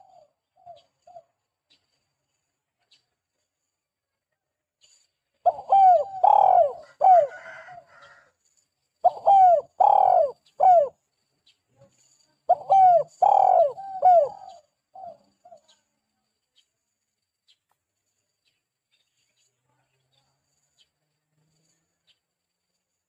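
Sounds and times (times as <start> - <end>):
dove cooing: 0.0 - 1.3, 5.4 - 8.1, 9.0 - 11.0, 12.5 - 15.7
small bird chirping: 9.0 - 21.0.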